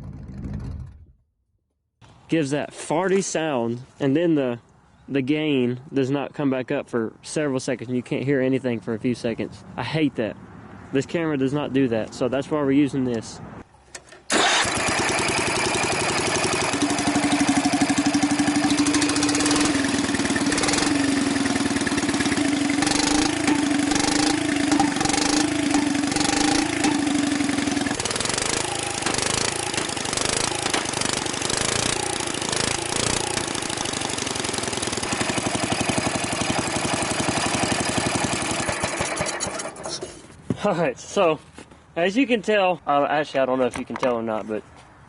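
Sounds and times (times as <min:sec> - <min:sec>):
engine running loudly: 0:14.3 - 0:39.8.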